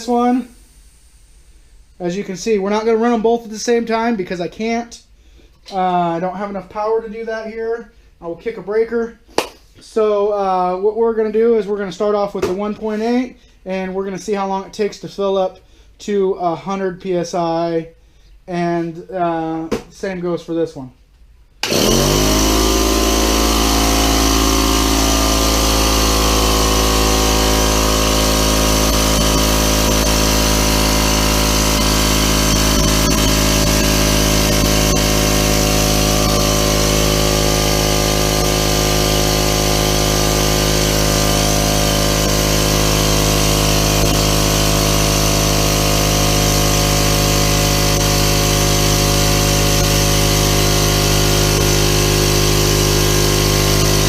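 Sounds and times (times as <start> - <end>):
air compressor running: 0.0 - 2.9, 21.5 - 54.0.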